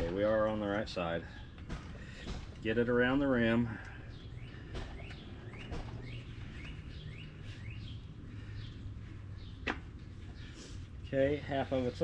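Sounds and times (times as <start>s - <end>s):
steady low hum: 0.0s - 12.0s
small bird chirping: 3.9s - 10.8s.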